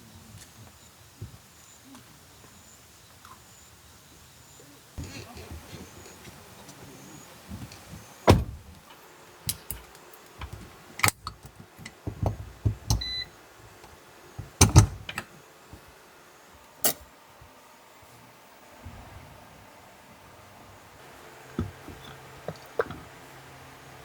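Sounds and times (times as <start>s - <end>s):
sharp knocks and clicks: 14.4s - 15.3s.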